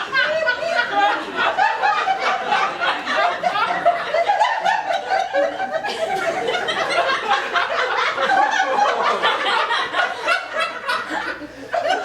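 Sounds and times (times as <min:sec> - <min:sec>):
audience laughing: 0:00.0 - 0:12.0.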